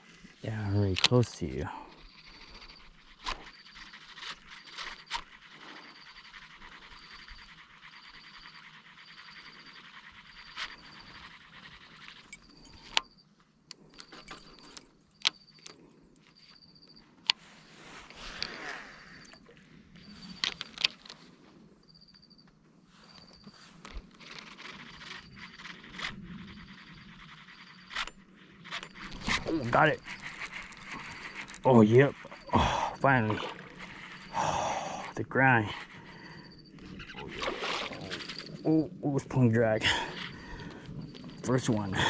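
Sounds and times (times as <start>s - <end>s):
rod and reel clicks and knocks: 0.6s - 17.4s, 18.0s - 21.3s, 23.2s - 34.4s
fishing reel whirring: 2.0s - 13.3s, 18.0s - 21.0s, 23.2s - 38.9s.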